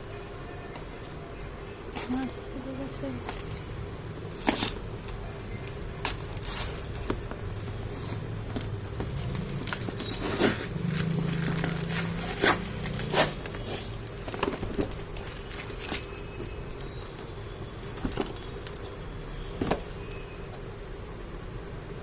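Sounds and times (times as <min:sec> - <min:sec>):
packaging crinkling and rustling: 0:03.1 - 0:19.0.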